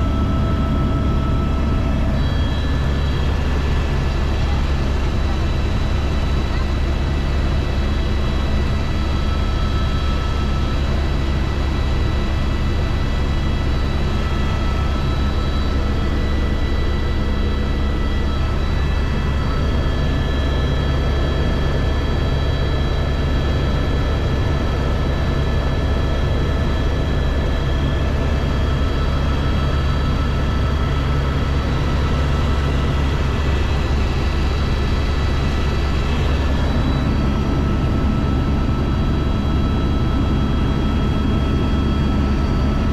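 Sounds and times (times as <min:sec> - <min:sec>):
helicopter engine and rotor: 0:00.0 - 0:42.9.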